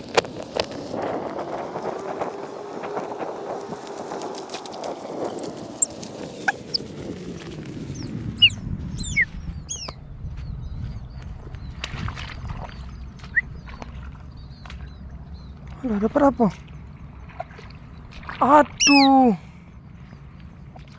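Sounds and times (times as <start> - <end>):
low rustling and rumble: 2.9 - 18.8, 19.4 - 20.9
bird sharp descending calls: 5.3 - 10.0, 18.4 - 19.4.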